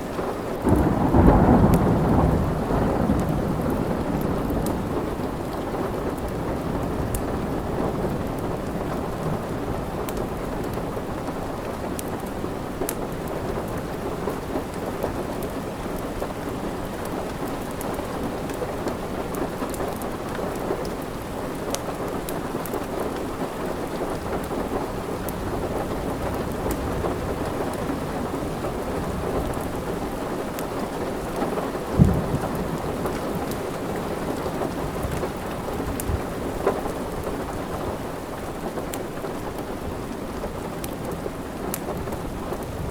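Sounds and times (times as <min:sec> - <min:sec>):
heavy rain: 0:00.0 - 0:42.9
thunder rumble: 0:00.6 - 0:11.1, 0:24.2 - 0:38.0
wood fire crackling: 0:03.2 - 0:42.9.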